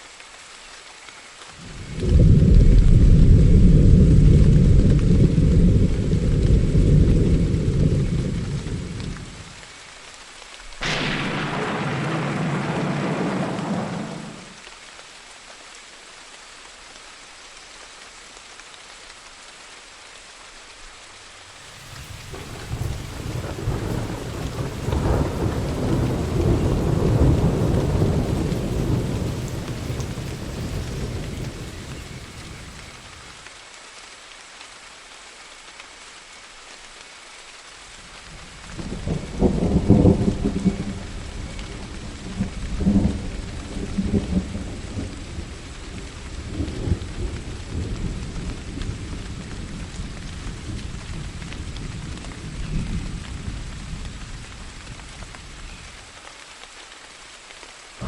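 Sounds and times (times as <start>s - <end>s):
steady rain: 0.0s - 58.0s
rumbling thunder: 1.6s - 9.5s, 10.8s - 14.6s, 21.6s - 33.4s, 38.7s - 54.4s
loud thunderclap: 1.9s - 9.2s, 10.8s - 14.6s, 21.6s - 33.4s, 38.9s - 41.1s.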